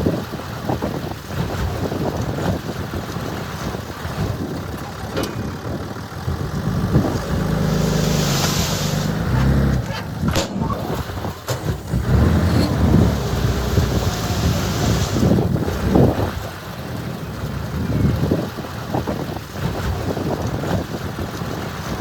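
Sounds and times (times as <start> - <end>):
heavy diesel machinery running: 0.0 - 22.0
sharp knocks and clanks: 5.1 - 5.7
short hiss: 7.7 - 9.2.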